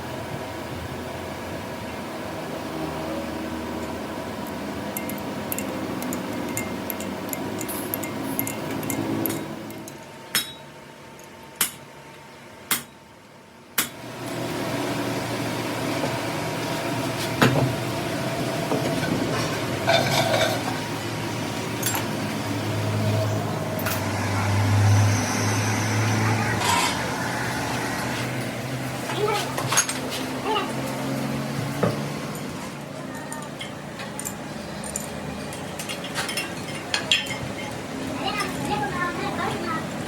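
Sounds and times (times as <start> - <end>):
metal clinks: 5.0 - 11.3
machine humming: 17.7 - 29.2.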